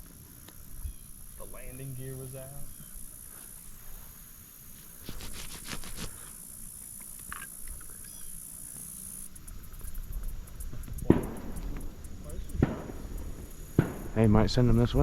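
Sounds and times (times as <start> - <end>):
insects buzzing: 0.0 - 15.0
sharp knock: 13.8 - 14.2.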